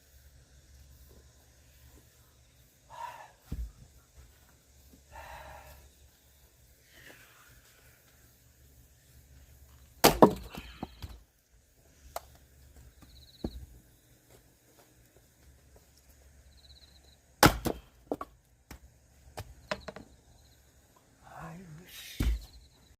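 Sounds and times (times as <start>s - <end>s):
axe striking wood: 10.0s - 11.1s, 17.4s - 18.3s.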